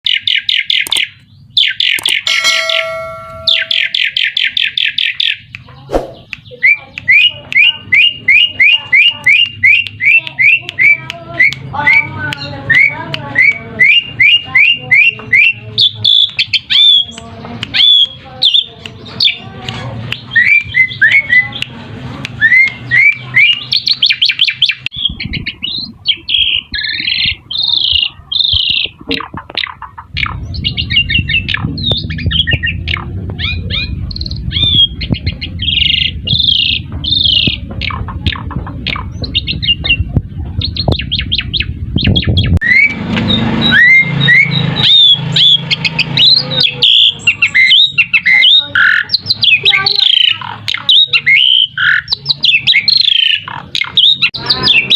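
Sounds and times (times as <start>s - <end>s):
starling singing: 0.0s - 54.9s
low background rumble: 29.8s - 42.6s.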